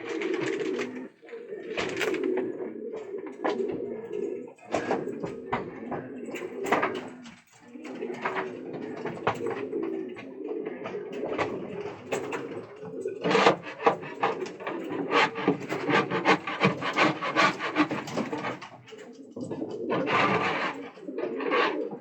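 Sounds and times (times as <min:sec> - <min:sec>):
scraping and tapping on wood: 0:00.0 - 0:01.1, 0:01.7 - 0:22.0
pigeons cooing: 0:00.0 - 0:22.0.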